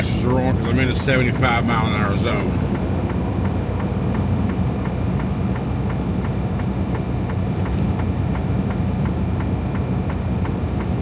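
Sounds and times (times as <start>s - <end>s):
truck engine drone: 0.0s - 11.0s.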